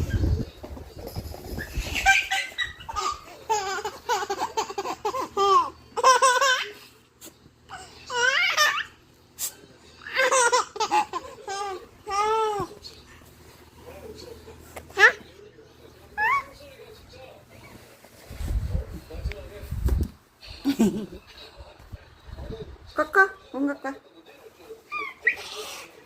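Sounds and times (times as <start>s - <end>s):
baby laughing: 1.5s - 6.9s, 7.7s - 9.0s, 10.0s - 12.8s.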